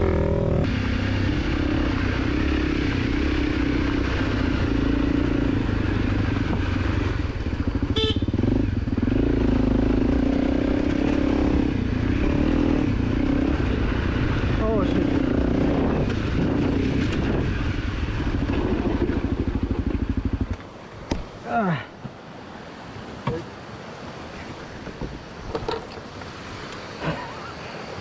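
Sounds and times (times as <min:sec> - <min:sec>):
dirt bike engine running: 0:00.0 - 0:20.8.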